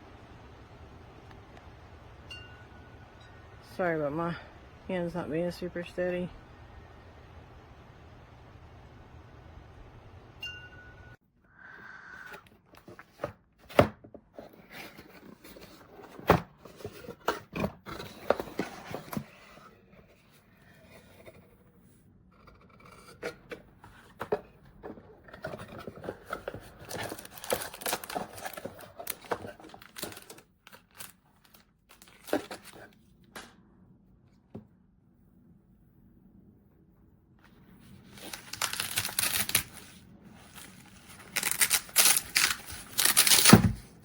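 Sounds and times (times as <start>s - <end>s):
short tone: 10.4s - 11.2s
rustling and crinkling: 12.6s - 22.0s, 22.9s - 33.4s, 37.3s - 44.0s.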